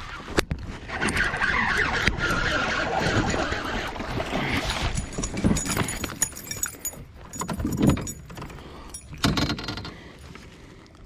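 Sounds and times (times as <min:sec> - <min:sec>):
fishing gear knocking and clattering: 0:03.1 - 0:10.3
light metallic jingling: 0:04.9 - 0:09.4.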